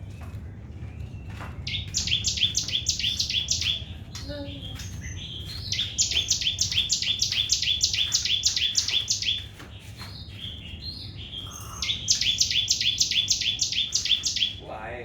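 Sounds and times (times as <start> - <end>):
soft bird calls: 0.0 - 15.0
bird singing rapid high notes: 1.7 - 9.6, 11.2 - 14.7.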